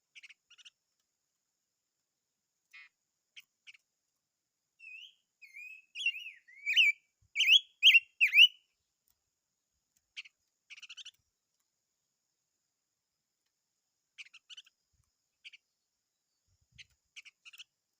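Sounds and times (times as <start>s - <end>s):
faint bird chattering call: 4.8s - 8.6s
songbird whistled song: 4.8s - 8.7s, 10.1s - 11.2s, 14.2s - 14.8s.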